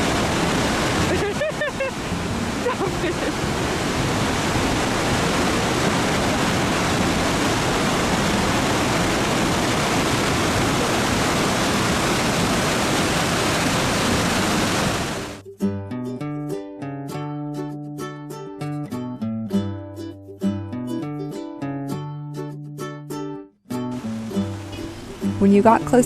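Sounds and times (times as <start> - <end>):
waterfall rushing: 0.0 - 15.4, 23.9 - 26.0.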